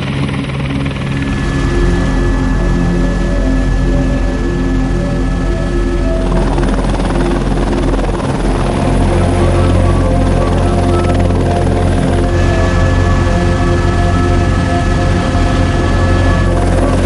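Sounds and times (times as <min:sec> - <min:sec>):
helicopter rotor beat: 0:00.0 - 0:17.0
background music: 0:00.1 - 0:17.0.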